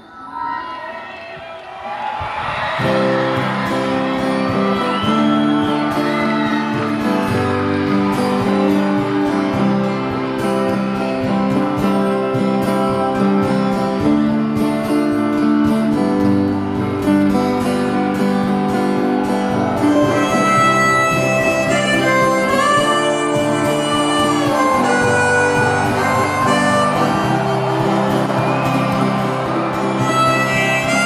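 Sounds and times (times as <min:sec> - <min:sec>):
acoustic guitar strumming chords: 0:02.8 - 0:31.0
accompanying instruments: 0:17.7 - 0:31.0.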